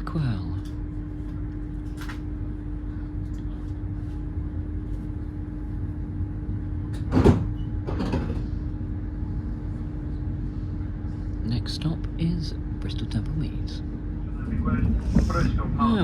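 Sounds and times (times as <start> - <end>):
steady hum: 0.0 - 16.0
train rumble: 0.0 - 16.0.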